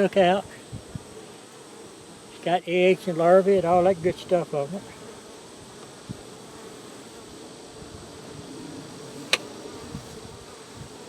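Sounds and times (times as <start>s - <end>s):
honeybees buzzing: 0.0s - 11.0s
sharp click: 9.3s - 9.5s.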